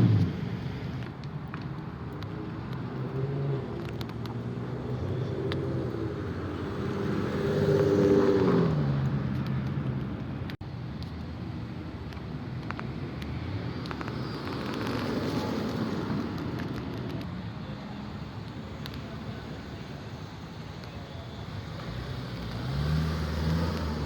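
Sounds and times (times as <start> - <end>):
car engine revving driving past: 21.7 - 24.0.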